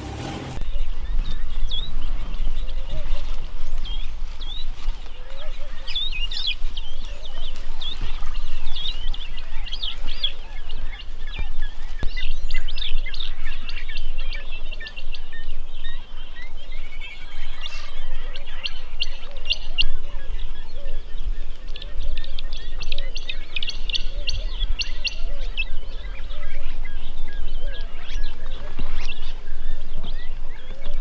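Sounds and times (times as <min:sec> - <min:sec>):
birds chirping and clicking: 0:00.0 - 0:31.0
low bending bird calls: 0:00.0 - 0:31.0.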